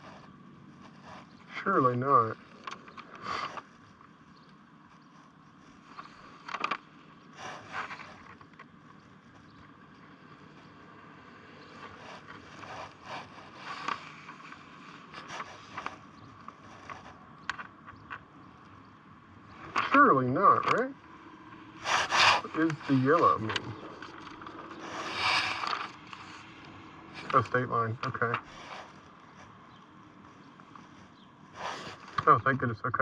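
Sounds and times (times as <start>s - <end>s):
faint steady hum: 0.0s - 33.0s
paper map rustling: 7.4s - 9.5s, 11.8s - 18.3s, 21.9s - 32.4s.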